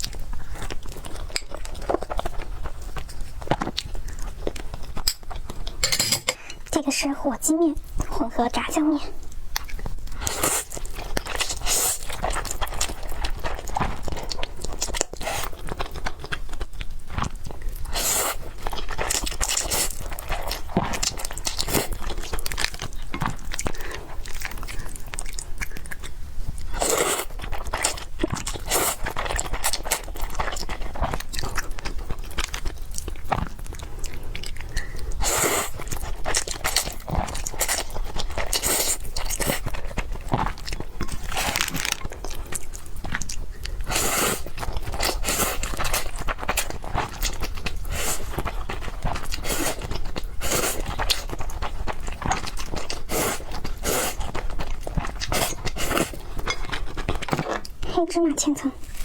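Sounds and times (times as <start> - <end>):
close-miked biting and chewing: 9.2 - 57.9.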